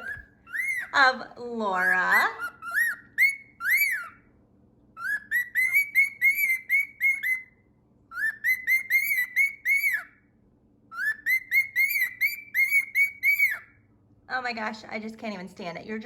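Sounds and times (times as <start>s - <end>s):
cockatiel whistling: 0.0s - 1.0s, 1.7s - 4.3s, 4.9s - 10.3s, 10.9s - 13.9s.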